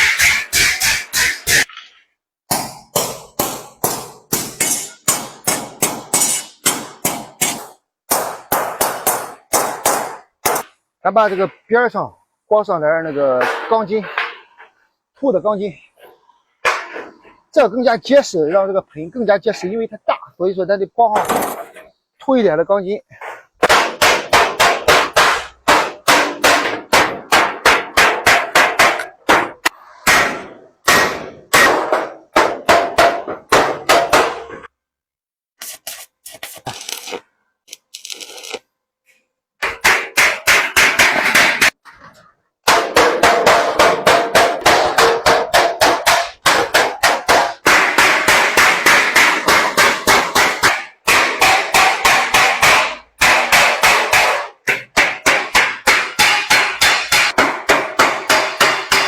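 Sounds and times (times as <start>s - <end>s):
hammer striking metal sheet: 0.0s - 1.7s, 2.5s - 11.6s, 13.0s - 14.5s, 23.6s - 34.7s, 39.6s - 41.8s, 42.6s - 59.0s.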